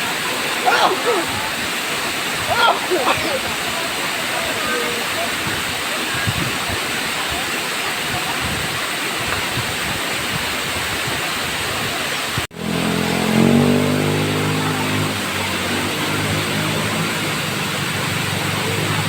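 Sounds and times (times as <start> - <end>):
waterfall rushing: 0.0 - 19.0
vehicle engine running: 12.5 - 19.0.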